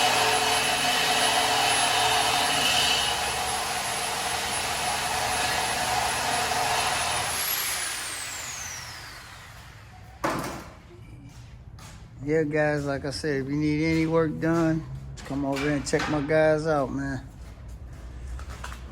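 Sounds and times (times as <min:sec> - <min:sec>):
power tool whining: 0:00.0 - 0:10.6.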